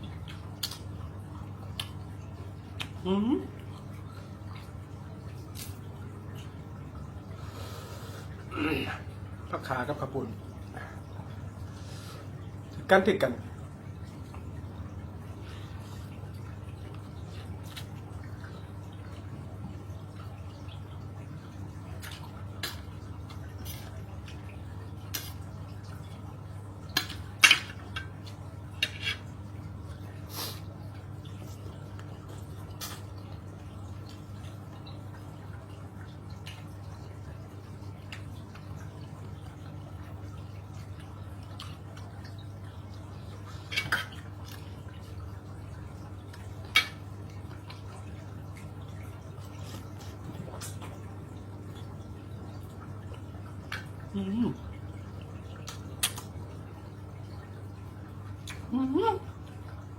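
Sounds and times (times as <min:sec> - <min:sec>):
wet chewing smacks and clicks: 0:00.0 - 0:06.6, 0:16.4 - 0:20.3, 0:21.8 - 0:26.1, 0:31.0 - 0:37.0, 0:40.6 - 0:42.6, 0:46.3 - 0:52.0, 0:55.5 - 0:56.6
eating noises: 0:00.0 - 0:12.7, 0:13.4 - 0:59.9
steady low hum: 0:00.0 - 0:59.9.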